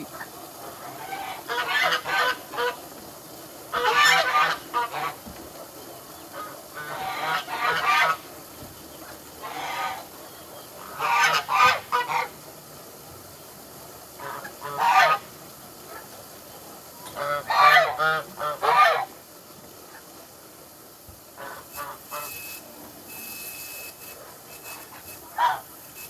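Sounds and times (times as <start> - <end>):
poultry calling: 0.0 - 2.8, 3.7 - 5.2, 6.3 - 8.2, 9.0 - 12.3, 14.2 - 15.3, 17.1 - 19.1, 21.4 - 22.6, 24.0 - 25.7.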